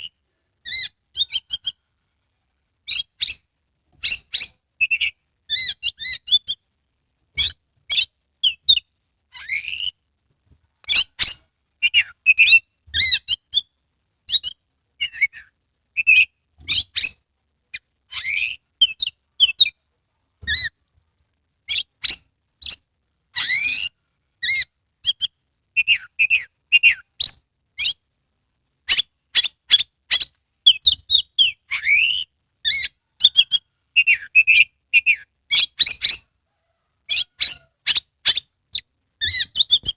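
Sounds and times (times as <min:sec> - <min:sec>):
songbird singing varied song: 0:00.0 - 0:01.9, 0:02.8 - 0:06.6, 0:10.8 - 0:19.8, 0:23.4 - 0:28.0, 0:28.9 - 0:36.3, 0:37.1 - 0:39.9.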